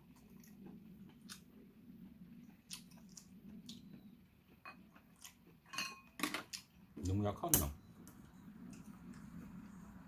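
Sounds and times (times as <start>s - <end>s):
low hum: 0.0s - 5.2s, 7.7s - 10.0s
faint chewing: 0.0s - 6.9s.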